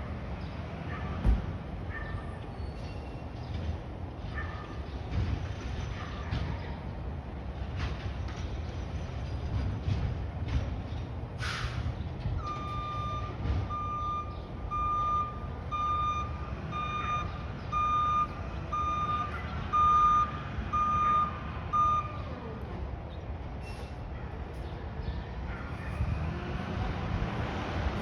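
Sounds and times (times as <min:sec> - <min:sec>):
truck engine running: 0:00.0 - 0:23.5
reversing alarm beeping: 0:12.4 - 0:22.4.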